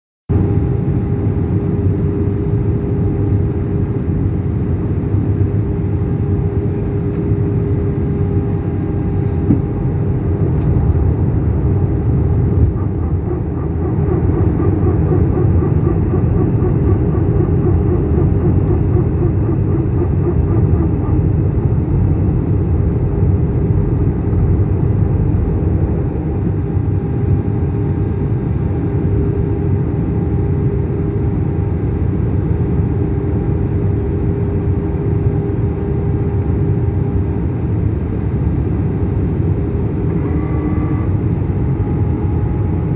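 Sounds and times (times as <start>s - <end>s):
jet engine rumble: 0.3s - 42.9s
steady hum: 0.3s - 42.9s
rapid pulsing tone: 8.2s - 22.1s.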